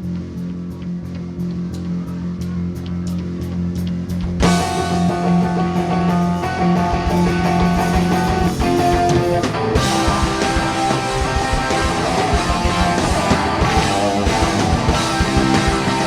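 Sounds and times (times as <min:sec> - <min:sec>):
held low note with ticks: 0:00.0 - 0:04.4
live rock band playing: 0:04.4 - 0:16.0.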